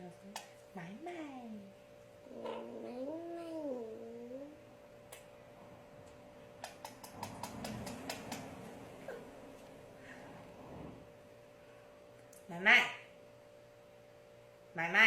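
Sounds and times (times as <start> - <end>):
sharp clicks: 6.6 - 8.5.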